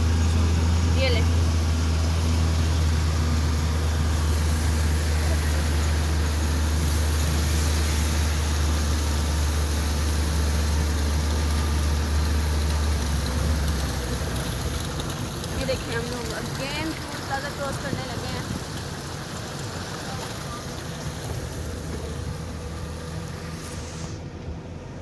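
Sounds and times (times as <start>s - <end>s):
car engine drone: 0.0s - 25.0s
hiss of cabin noise: 17.1s - 24.9s.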